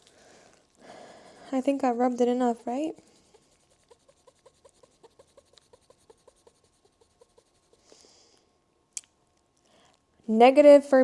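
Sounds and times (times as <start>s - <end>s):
squeaky rubbing with polish: 1.3s - 8.0s.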